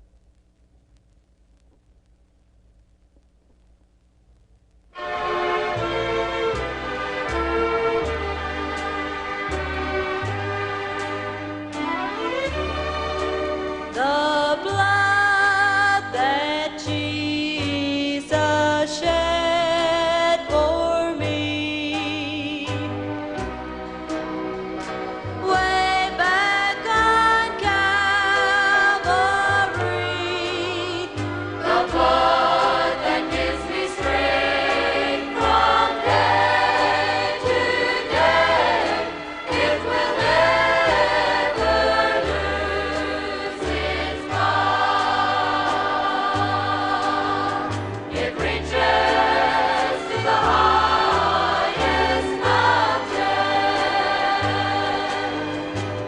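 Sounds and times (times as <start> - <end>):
instrumental accompaniment: 5.0 - 14.4, 20.6 - 56.0
choir singing gospel: 5.0 - 23.4, 24.6 - 56.0.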